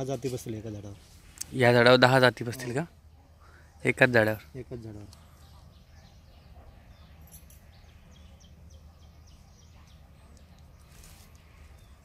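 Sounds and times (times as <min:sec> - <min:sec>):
small bird chirping: 0:04.4 - 0:12.0.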